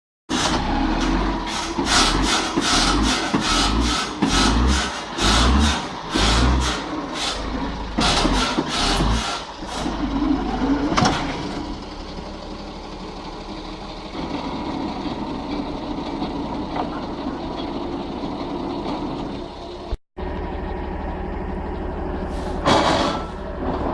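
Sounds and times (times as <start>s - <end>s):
sawing through wood: 0.3s - 10.2s
engine running: 0.3s - 23.9s.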